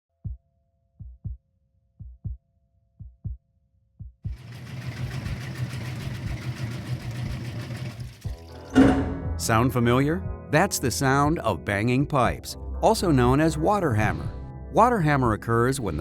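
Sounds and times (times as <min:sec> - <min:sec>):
water rushing in pipes: 0:04.4 - 0:09.2
pipes knocking: 0:08.8 - 0:09.5.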